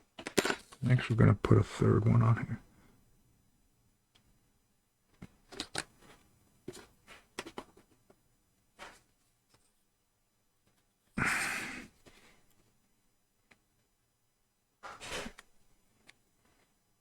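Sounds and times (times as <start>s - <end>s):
clicks and rustles of handling: 5.1s - 8.2s.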